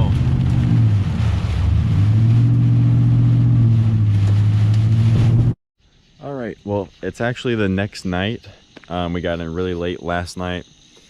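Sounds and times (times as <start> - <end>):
truck engine droning: 0.0 - 5.6.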